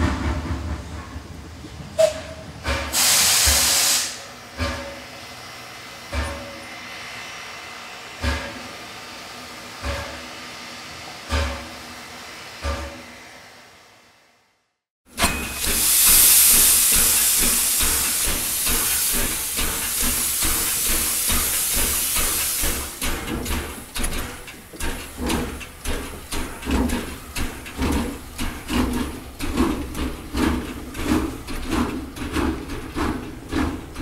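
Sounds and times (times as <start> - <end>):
rhythmic train knocking: 0.0 - 7.0, 8.0 - 13.2, 15.1 - 34.0
low train rumble: 0.0 - 14.3, 15.1 - 34.0
loud steady hiss: 3.0 - 4.3.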